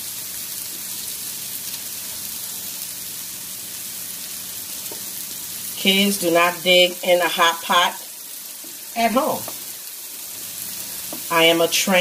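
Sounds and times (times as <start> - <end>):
vegetables sizzling on a griddle: 0.0 - 12.0.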